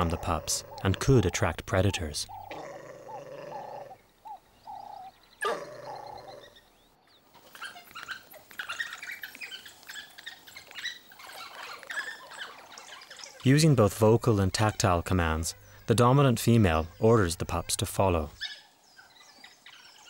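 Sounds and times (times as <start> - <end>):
wild dogs hooting: 0.0 - 6.6
wild dog yelp: 2.3 - 6.6.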